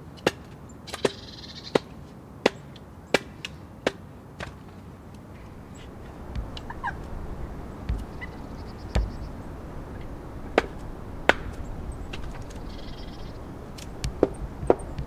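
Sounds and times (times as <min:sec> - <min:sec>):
blade chopping wood: 0:05.4 - 0:15.0.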